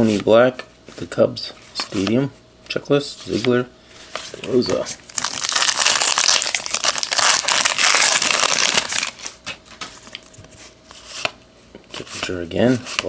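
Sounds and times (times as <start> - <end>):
plastic wrapper crinkling: 5.0 - 9.5.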